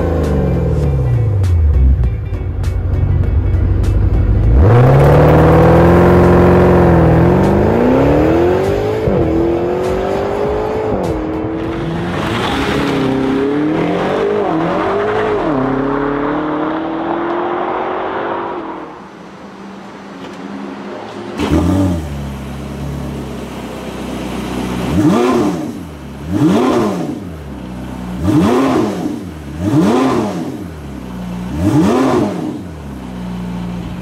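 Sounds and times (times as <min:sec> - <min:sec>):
car accelerating through gears: 0:04.5 - 0:19.0
car engine idling: 0:18.8 - 0:31.9, 0:32.5 - 0:34.0.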